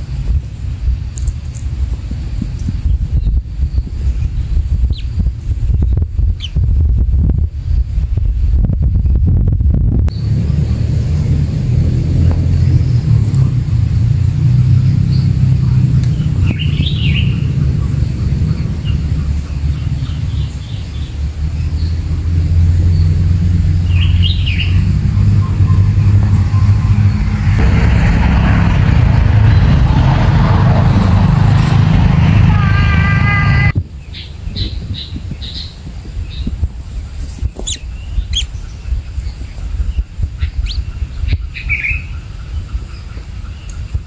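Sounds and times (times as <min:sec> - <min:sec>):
steady low rumble: 0:00.0 - 0:33.8
bird chirps: 0:37.6 - 0:39.4.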